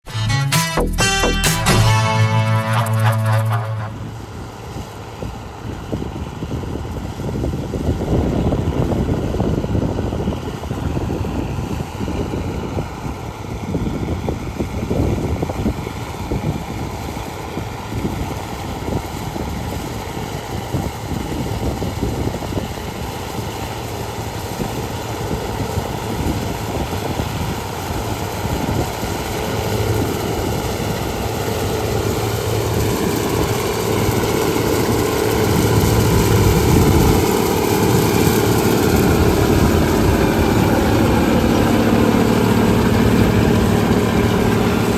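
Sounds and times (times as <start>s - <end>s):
higher steady hum: 0.0s - 4.6s, 31.7s - 44.9s
harvester engine droning: 29.0s - 44.9s.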